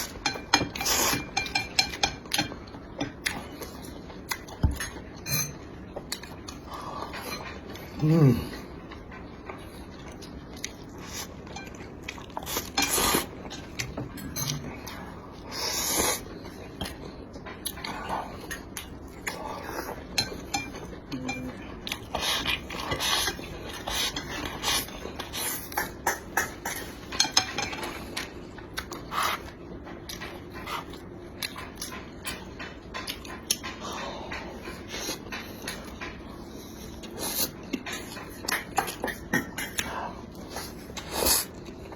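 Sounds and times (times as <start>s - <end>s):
person chewing: 0.0s - 5.2s, 5.9s - 41.9s
utensils scraping dishes: 11.4s - 14.9s, 19.9s - 28.3s.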